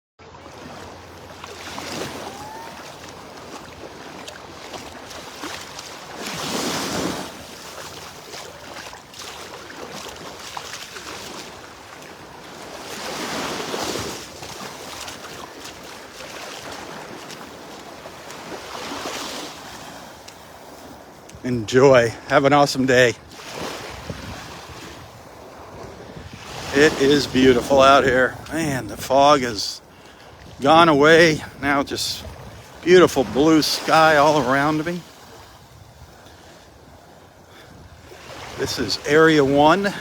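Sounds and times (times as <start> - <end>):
surf breaking on beach: 0.5 - 29.8, 30.4 - 35.8, 37.5 - 40.0.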